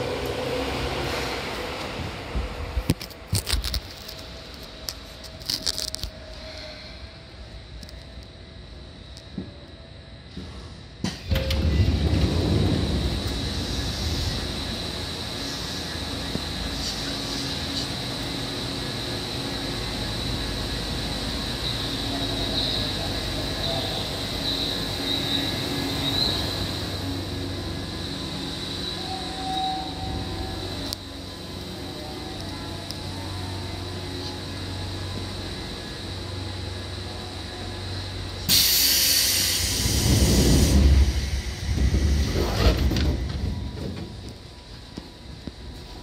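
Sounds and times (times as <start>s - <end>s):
train wheels rumbling on rail: 0.0s - 8.4s, 9.2s - 46.0s
high whine: 0.0s - 46.0s
low rumble: 11.4s - 16.7s
compressed air hiss: 38.5s - 42.3s.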